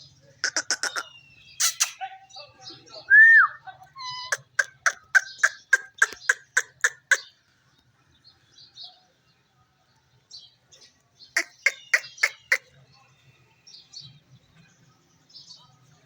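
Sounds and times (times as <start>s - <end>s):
parrot short sharp calls: 0.4s - 2.0s.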